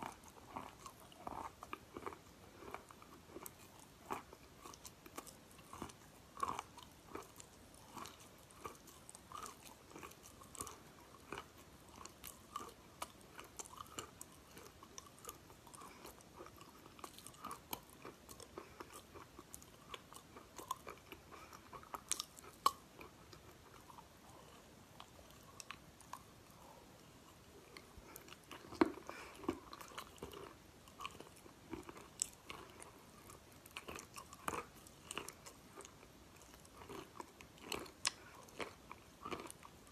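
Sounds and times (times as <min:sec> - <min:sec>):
crunchy chewing: 0:00.0 - 0:39.9.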